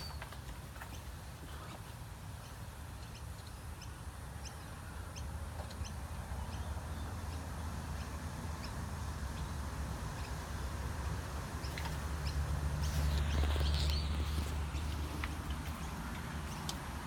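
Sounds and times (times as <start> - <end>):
small bird chirping: 11.6 - 15.2.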